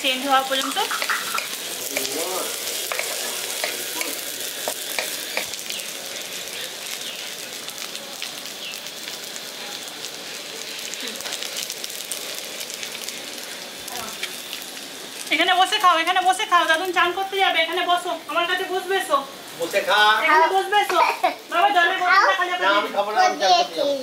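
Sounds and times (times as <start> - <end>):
vegetables sizzling in oil: 0.0 - 24.0
spatula clicking against pan: 5.0 - 5.6.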